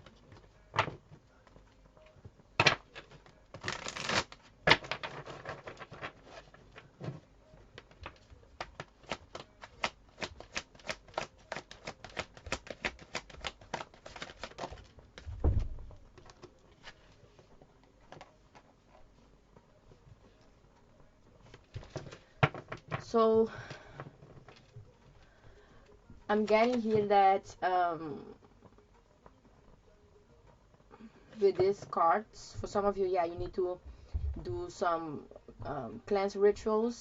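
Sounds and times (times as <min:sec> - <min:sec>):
cards being shuffled: 0:02.6 - 0:06.9, 0:07.8 - 0:15.3.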